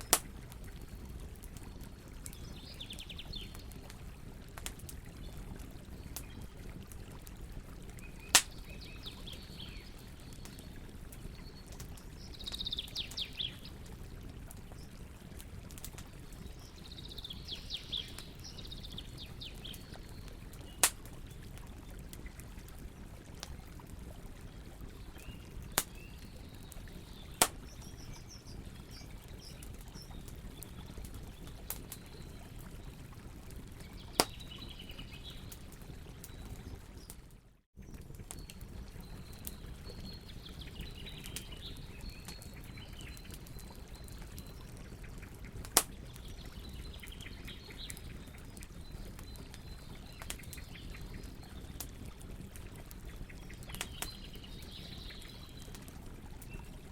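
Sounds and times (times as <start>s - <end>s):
fire popping sharply: 0.0s - 1.0s, 8.0s - 8.8s, 19.8s - 21.5s, 25.4s - 26.4s, 27.1s - 31.0s, 33.9s - 34.6s
campfire hissing: 8.3s - 8.8s.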